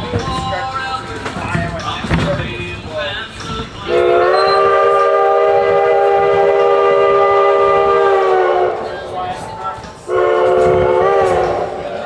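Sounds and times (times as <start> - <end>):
locomotive steam whistle blast: 3.9 - 8.8, 10.1 - 11.8.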